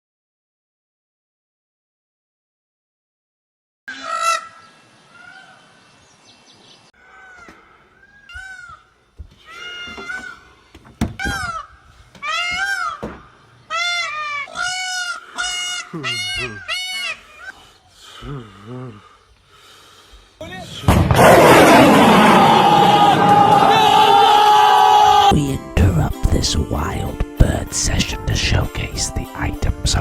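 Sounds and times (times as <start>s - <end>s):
geese honking: 3.9s - 4.6s, 11.2s - 18.2s.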